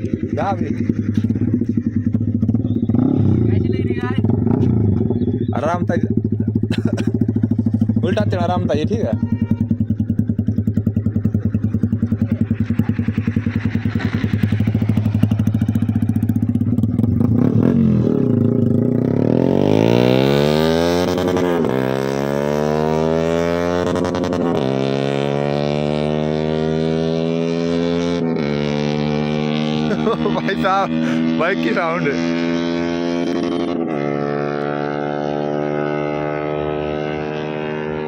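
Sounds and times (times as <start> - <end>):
motorcycle engine accelerating: 0.0 - 38.0.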